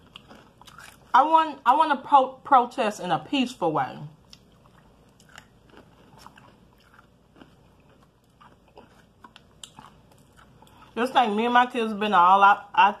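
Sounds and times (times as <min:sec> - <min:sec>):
quiet chewing with crunching: 0:00.0 - 0:01.1, 0:04.2 - 0:11.0.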